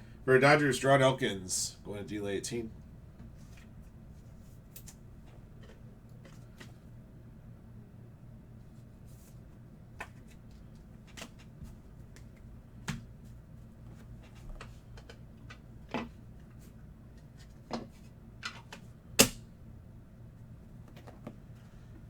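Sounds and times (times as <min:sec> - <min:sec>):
cards tapping and clicking: 0:10.0 - 0:13.1.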